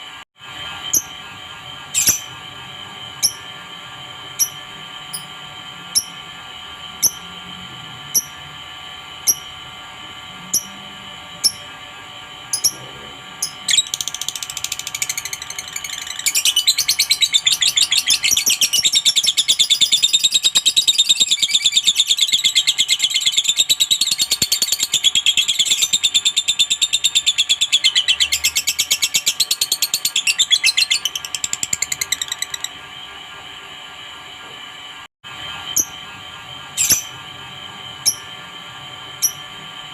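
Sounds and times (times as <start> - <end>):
lovebird chirping and trilling: 2.0 - 2.3, 13.4 - 32.7, 36.8 - 37.2, 38.0 - 38.3.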